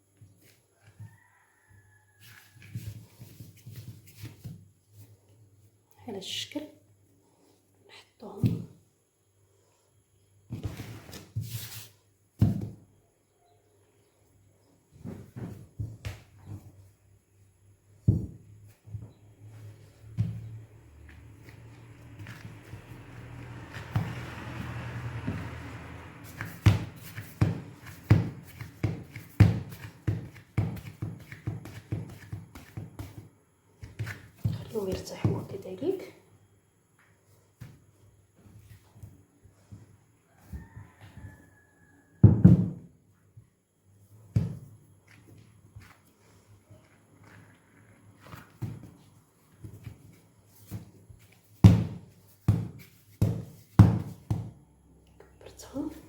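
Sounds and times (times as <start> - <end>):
hands kneading dough: 0.0 - 6.0, 7.0 - 13.2, 13.9 - 41.6, 42.3 - 56.0
dough thudding on work surface: 20.0 - 35.6, 42.2 - 43.0, 44.3 - 45.9, 48.2 - 54.6.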